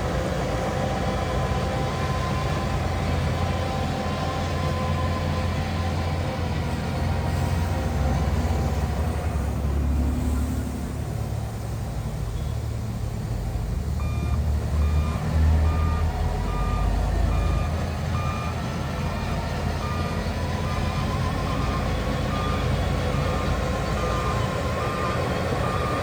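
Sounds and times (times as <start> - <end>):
diesel engine rumble: 0.0 - 26.0
reversing alarm beeping: 14.0 - 26.0.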